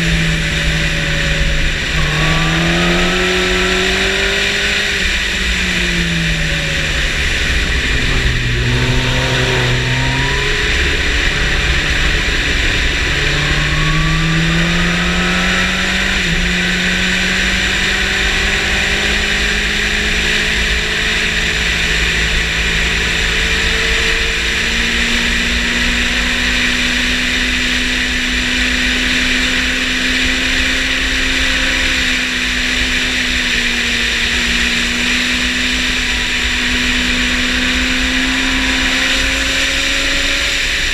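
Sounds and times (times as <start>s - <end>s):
motorcycle engine revving: 0.0s - 40.9s
wind rush: 1.4s - 16.9s.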